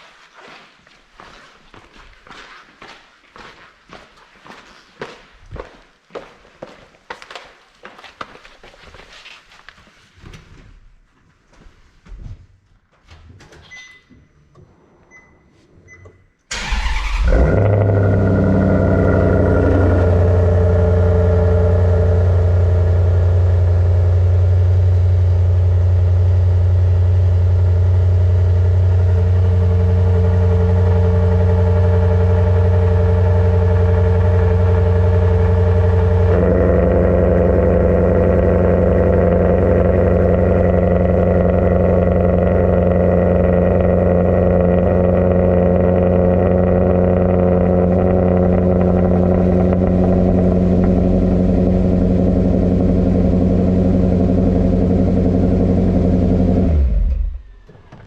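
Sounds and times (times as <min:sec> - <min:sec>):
faint beeps: 0:13.7 - 0:16.3
engine cranking and firing: 0:16.5 - 0:25.0, 0:27.6 - 0:58.0
car engine idling: 0:16.5 - 0:58.0.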